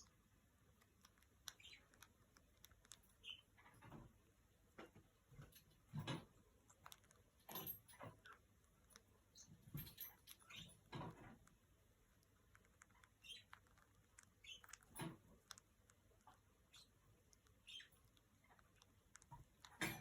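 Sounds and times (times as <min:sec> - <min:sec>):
parrot squeaks: 0:01.4 - 0:02.1, 0:02.9 - 0:03.7, 0:09.3 - 0:11.1, 0:12.8 - 0:13.8, 0:14.4 - 0:15.0, 0:16.7 - 0:18.7.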